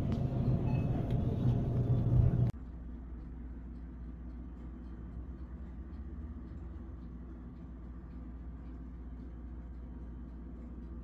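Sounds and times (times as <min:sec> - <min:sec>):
car engine rumble: 0:00.0 - 0:02.5
quiet low hum: 0:00.0 - 0:11.0.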